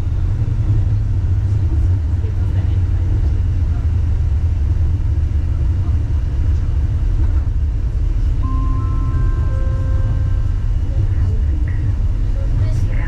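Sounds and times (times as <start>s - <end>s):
suspension railway car rumbling: 0.0s - 13.0s
electric whining tones: 8.4s - 12.3s.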